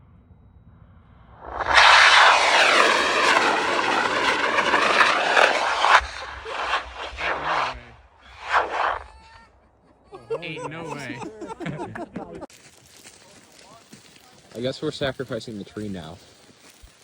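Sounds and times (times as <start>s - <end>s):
rocket motor roaring: 1.3s - 9.1s.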